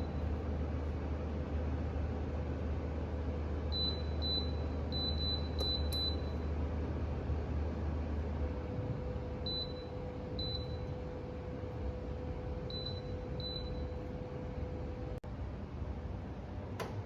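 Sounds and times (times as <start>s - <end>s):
faint hum: 0.0s - 17.0s
space heater fan running: 0.0s - 17.0s.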